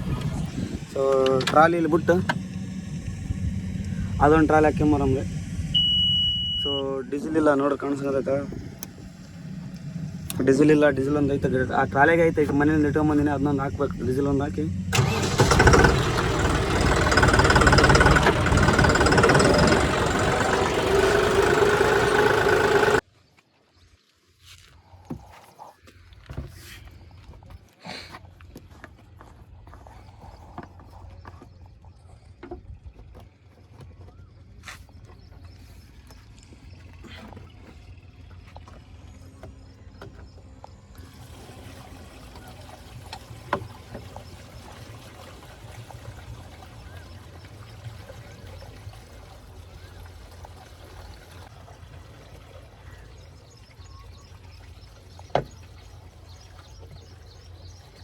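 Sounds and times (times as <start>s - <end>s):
diesel engine rumbling: 0.0s - 23.0s
sharp clicks: 15.0s - 23.0s.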